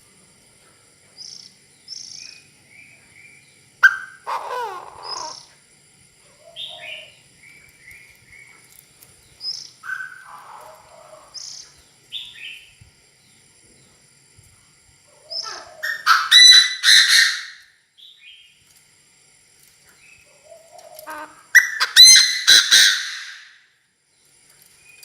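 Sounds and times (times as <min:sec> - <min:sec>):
harsh downward-sweeping bird calls: 0:01.2 - 0:05.6, 0:06.3 - 0:12.8, 0:15.2 - 0:18.6, 0:20.0 - 0:23.6.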